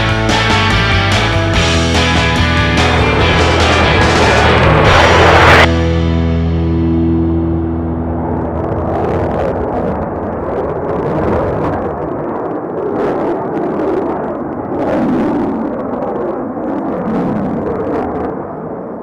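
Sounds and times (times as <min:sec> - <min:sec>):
held notes of music: 0:00.0 - 0:08.6
aircraft engine roar: 0:00.0 - 0:19.0.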